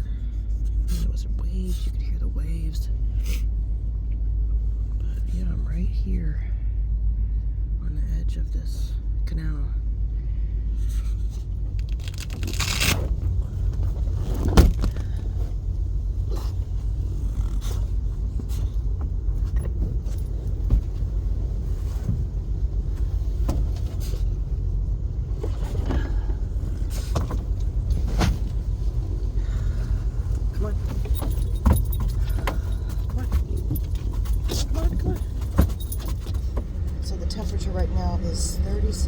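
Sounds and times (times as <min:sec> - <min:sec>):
truck engine rumble: 0:00.0 - 0:39.0
light clicks and rattles: 0:11.3 - 0:37.6.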